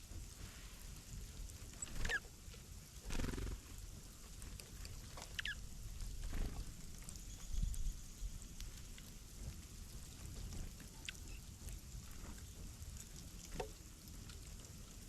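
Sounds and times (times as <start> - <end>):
soft rustles: 0.0 - 5.3
constant low rumble: 0.0 - 15.0
small birds chirping: 1.8 - 2.3, 5.2 - 8.9, 10.9 - 11.6.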